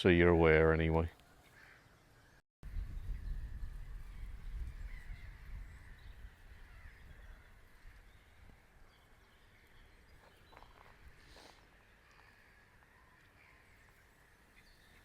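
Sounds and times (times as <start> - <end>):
birds chirping: 0.0 - 15.0
harsh bird calls: 0.1 - 15.0
wind rumble on microphone: 2.6 - 9.0.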